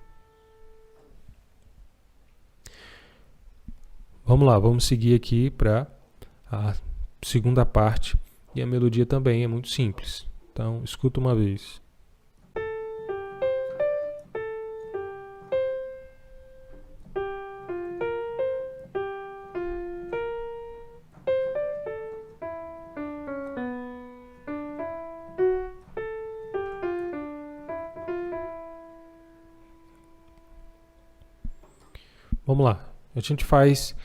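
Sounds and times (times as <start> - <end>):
piano melody: 0.0 - 1.3, 12.5 - 32.0.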